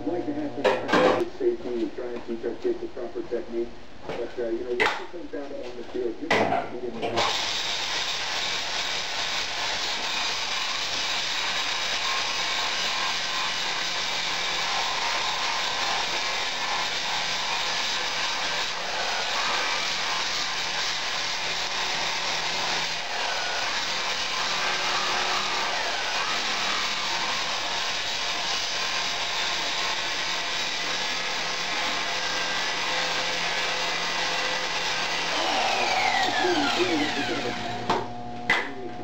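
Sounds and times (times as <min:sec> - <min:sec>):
power grinder grinding steel: 0:07.2 - 0:38.0.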